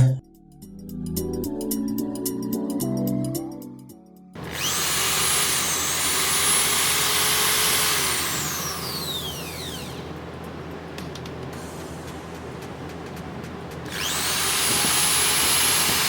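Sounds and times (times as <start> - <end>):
electric drill motor whine: 4.4 - 11.5, 13.4 - 16.0.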